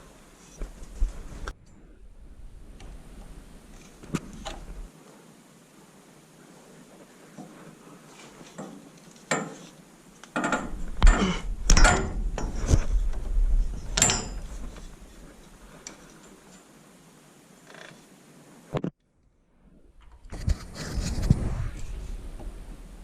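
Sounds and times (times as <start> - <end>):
low rumble: 0.8 - 4.9, 19.5 - 23.0
tools and metal fittings clanking: 8.4 - 16.7.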